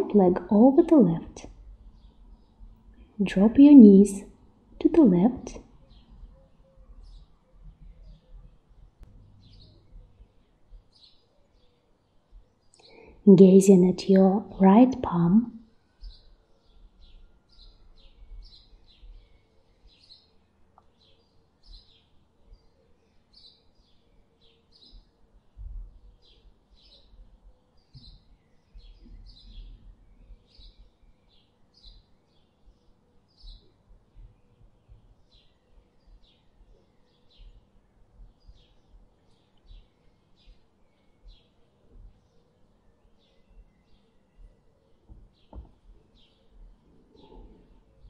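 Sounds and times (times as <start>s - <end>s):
small bird chirping: 15.2s - 48.0s.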